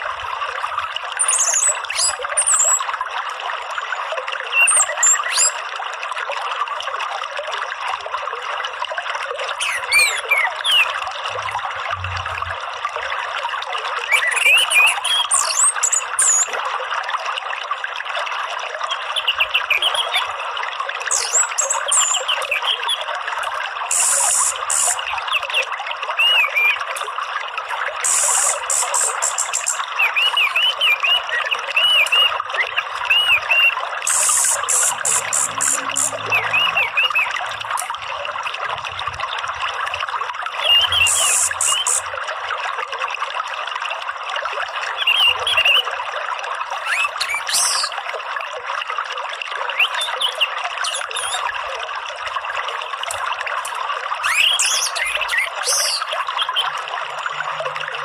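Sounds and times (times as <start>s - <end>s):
running water trickling: 0.0s - 58.0s
small birds chirping: 23.9s - 25.6s, 28.0s - 37.4s, 40.6s - 42.0s, 54.3s - 56.6s.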